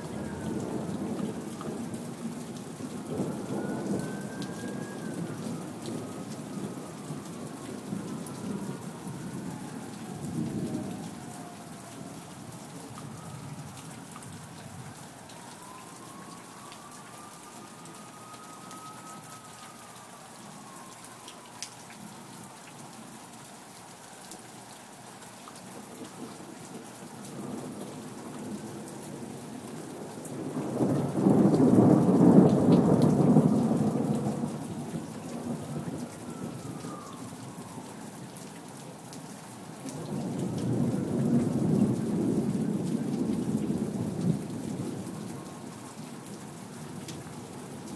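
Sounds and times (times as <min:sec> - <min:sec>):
thunder rumbling: 0:00.0 - 0:11.7, 0:30.4 - 0:37.0
steady rain falling: 0:00.0 - 0:47.9.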